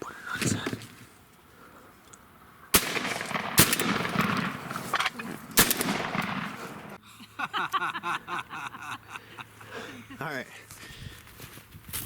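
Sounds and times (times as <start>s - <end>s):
shotgun shots: 2.7s - 7.0s.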